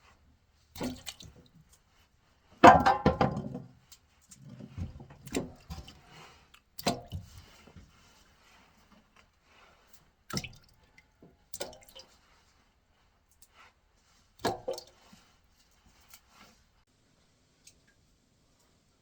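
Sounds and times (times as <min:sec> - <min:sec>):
wet squishing rustles of carrots: 0:03.8 - 0:19.0.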